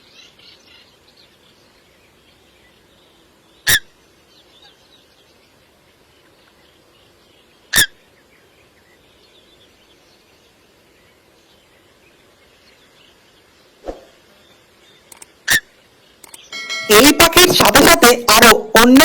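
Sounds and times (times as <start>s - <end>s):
coot calling: 7.7s - 8.0s.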